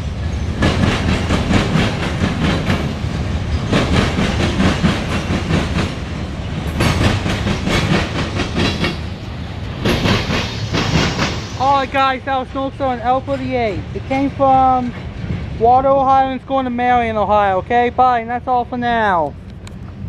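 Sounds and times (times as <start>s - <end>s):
train wheels clacking over joints: 0.4s - 11.5s.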